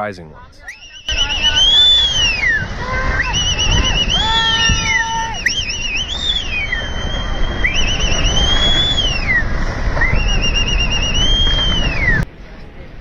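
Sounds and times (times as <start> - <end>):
low steady rumble: 0.4 - 13.0
electronic siren wailing: 0.6 - 9.4.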